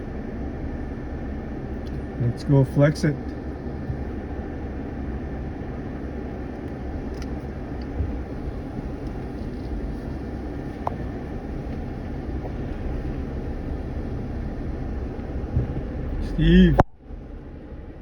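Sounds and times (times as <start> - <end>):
off-road vehicle engine rumble: 0.0 - 18.0
suspension knocks and clicks: 3.2 - 4.4, 6.6 - 16.3.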